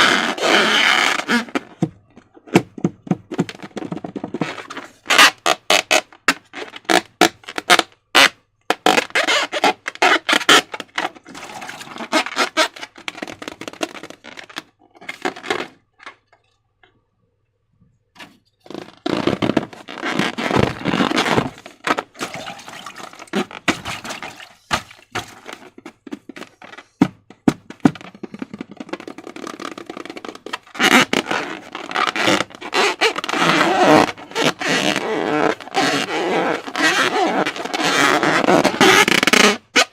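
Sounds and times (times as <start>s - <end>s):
slime crackling and squelching: 20.2s - 25.6s.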